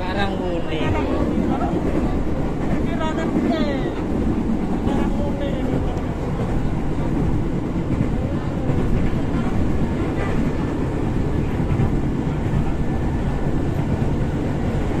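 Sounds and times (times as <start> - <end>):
train carriage rumbling on rails: 0.0 - 15.0.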